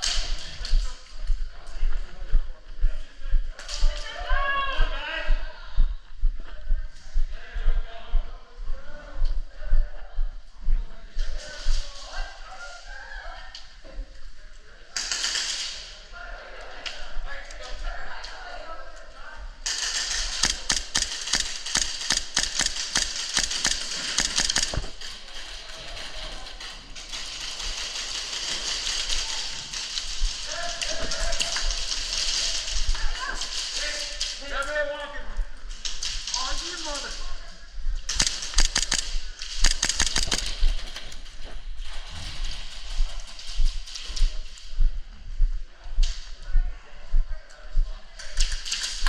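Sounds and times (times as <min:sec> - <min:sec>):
airsoft gun shots: 0:20.4 - 0:24.9, 0:38.2 - 0:40.6.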